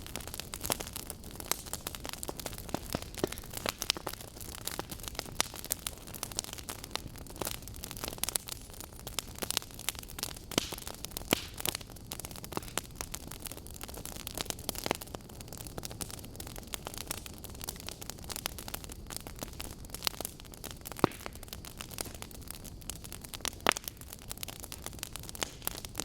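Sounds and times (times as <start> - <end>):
burning logs crackling: 0.0 - 26.0.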